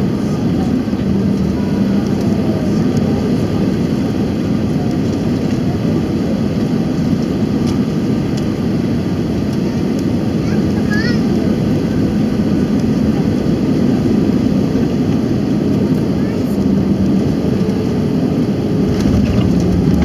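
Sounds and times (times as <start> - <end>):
airplane cabin engine noise: 0.0 - 20.0
steady low hum: 16.2 - 20.0.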